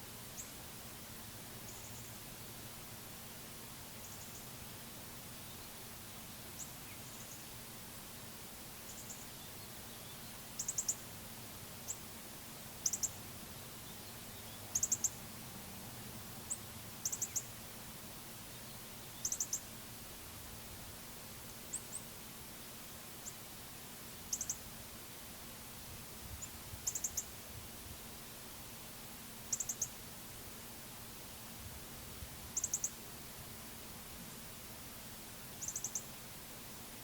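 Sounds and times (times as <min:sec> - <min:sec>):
songbirds chirping: 0:00.0 - 0:20.4, 0:21.0 - 0:25.7, 0:26.3 - 0:37.0
faint low hum: 0:00.0 - 0:37.0.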